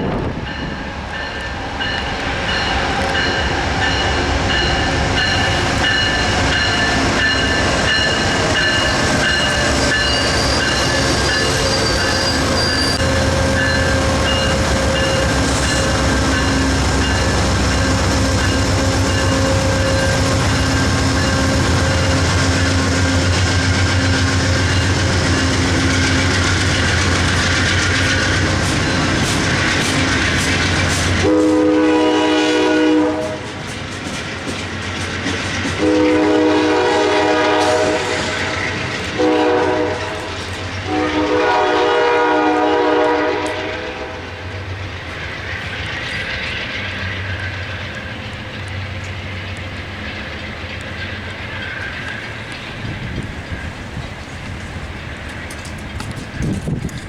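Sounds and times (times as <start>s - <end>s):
train wheels clicking over rail joints: 0.1s - 31.8s, 33.2s - 41.0s, 44.5s - 57.0s
locomotive air horn: 9.6s - 16.8s, 31.2s - 33.5s, 35.8s - 38.6s, 39.2s - 44.5s.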